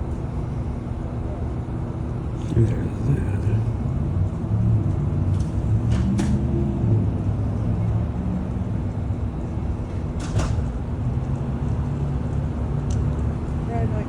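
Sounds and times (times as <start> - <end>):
low rumble of vehicle: 0.0 - 14.0.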